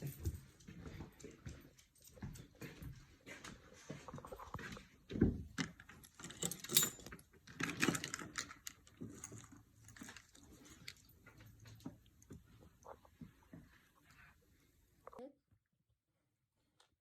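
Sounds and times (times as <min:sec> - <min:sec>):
handling clicks and knocks: 0:05.2 - 0:12.3
small metal pieces jingling: 0:06.1 - 0:11.1.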